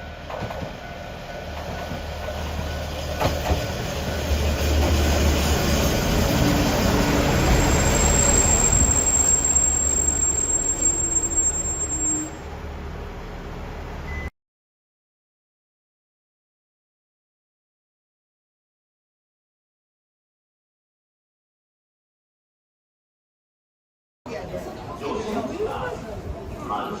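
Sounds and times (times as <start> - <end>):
train rumbling on rails: 0.0 - 14.3
high-pitched wheel squeal: 7.0 - 12.5.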